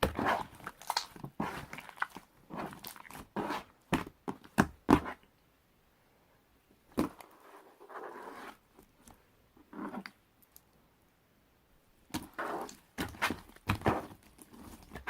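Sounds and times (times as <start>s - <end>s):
sticky slime squishes: 0.0s - 3.6s.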